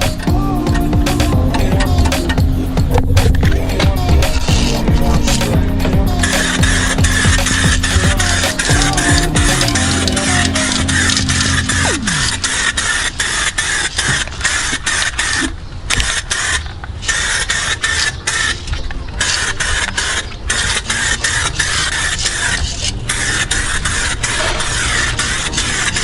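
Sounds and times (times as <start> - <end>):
aerosol spray can hissing: 0.0 - 13.8.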